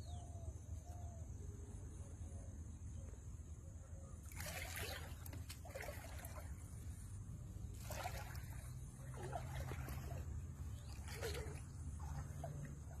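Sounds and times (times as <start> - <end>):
water splashing and trickling: 4.2 - 13.0.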